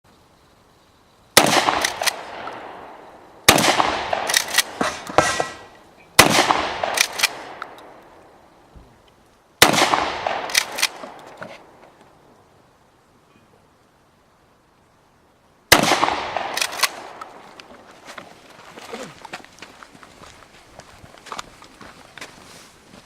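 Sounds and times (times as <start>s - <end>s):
gunshot echo: 1.4s - 7.8s, 9.6s - 11.2s, 15.7s - 17.3s
shotgun shots: 1.4s - 7.8s, 9.6s - 11.2s, 15.7s - 17.4s
sharp cracks: 1.4s - 8.4s, 9.6s - 12.2s, 15.7s - 18.3s.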